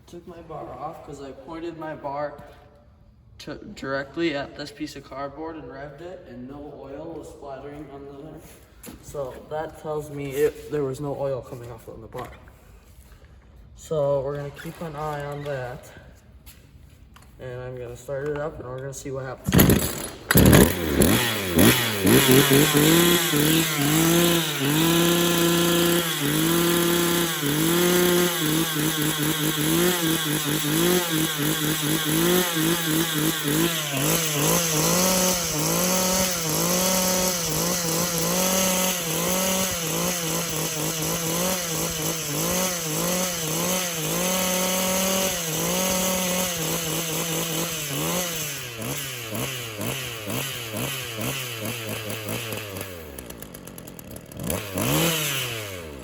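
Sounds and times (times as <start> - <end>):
chainsaw revving: 18.0 - 56.0.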